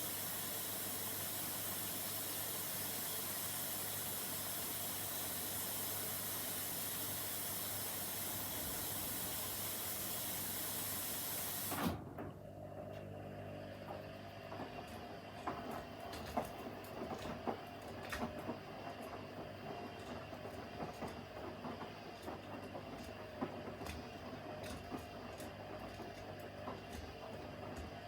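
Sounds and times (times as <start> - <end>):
washing machine motor whine: 0.0 - 28.0
laundry tumbling clicks and knocks: 14.5 - 28.0.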